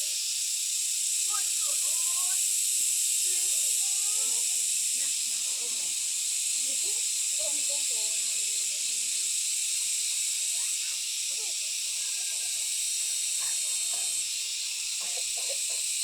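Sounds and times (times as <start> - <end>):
forest background hiss: 0.0 - 16.0
faint low voices: 3.2 - 15.8.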